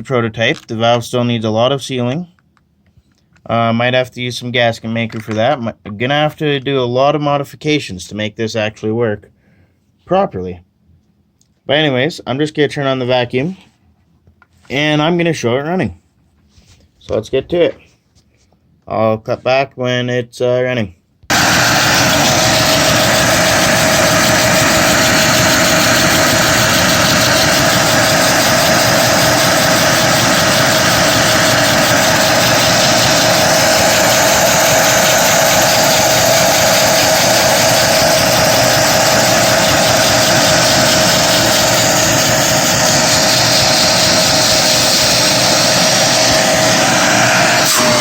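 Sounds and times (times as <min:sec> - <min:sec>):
vacuum cleaner whining: 0:21.3 - 0:48.0.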